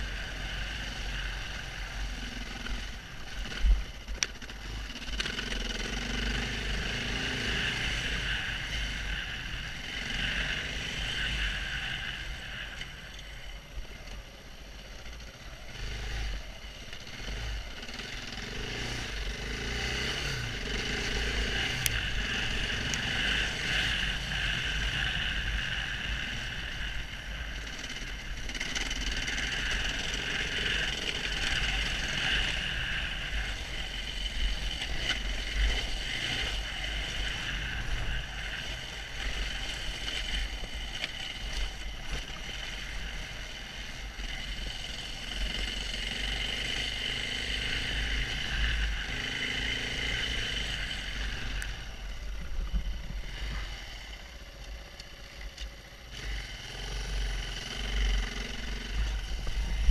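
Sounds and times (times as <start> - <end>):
motorcycle engine revving: 0.0 - 59.9
low rumble: 50.0 - 56.0, 58.4 - 59.9.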